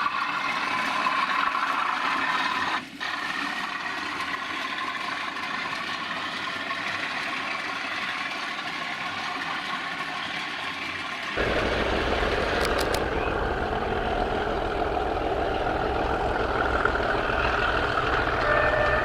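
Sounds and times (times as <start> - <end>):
diesel locomotive engine running: 0.0 - 19.0
quick clicks: 12.3 - 13.4.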